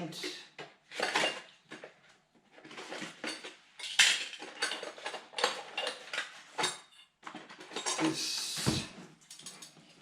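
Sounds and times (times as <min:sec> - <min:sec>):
metal parts clinking and knocking: 0:02.8 - 0:06.7.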